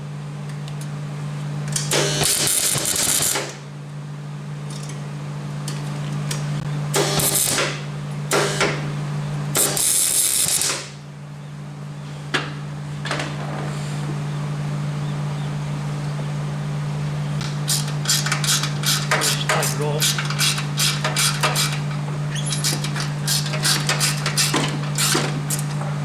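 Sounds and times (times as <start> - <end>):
steady low hum: 0.0 - 26.0
welding arc crackling: 2.0 - 3.6, 7.0 - 7.8, 9.6 - 10.9.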